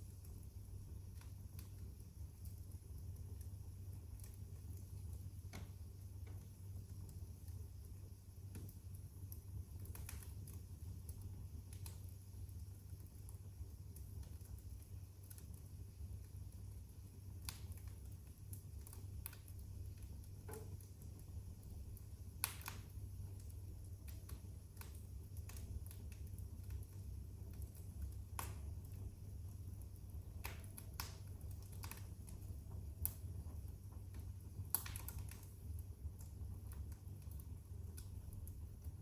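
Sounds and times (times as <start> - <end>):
low steady hum: 0.0 - 39.0
wood fire crackling: 0.0 - 39.0.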